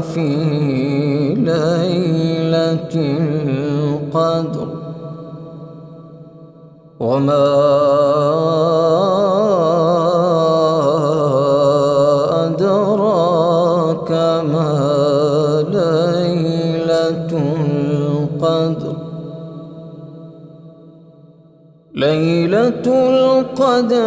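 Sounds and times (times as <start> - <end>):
man reciting melodically: 0.0 - 5.6, 7.0 - 20.0, 21.9 - 24.0.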